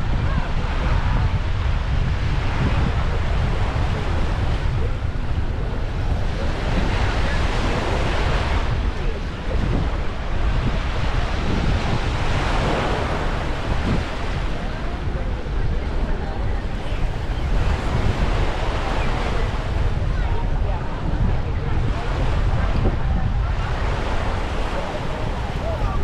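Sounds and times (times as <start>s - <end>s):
small waves washing on sand: 0.0s - 26.0s
wind buffeting microphone: 0.0s - 26.0s.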